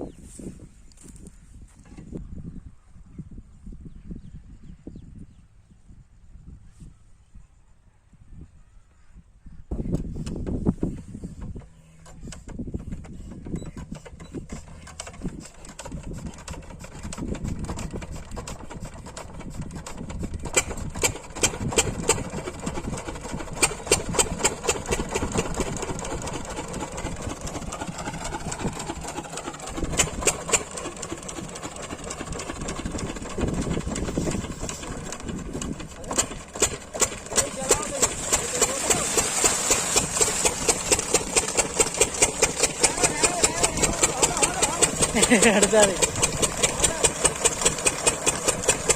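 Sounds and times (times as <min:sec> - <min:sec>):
diesel water pump engine running: 0:10.0 - 0:48.9.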